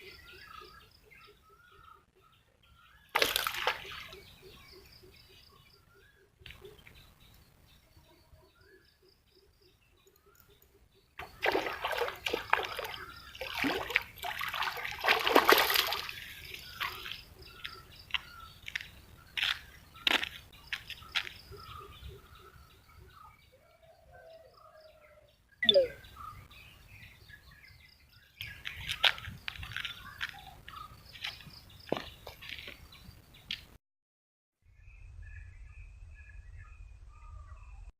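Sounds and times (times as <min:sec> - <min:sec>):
birds chirping: 0:00.0 - 0:33.8
water splashing and sloshing: 0:03.1 - 0:04.4, 0:11.2 - 0:18.8.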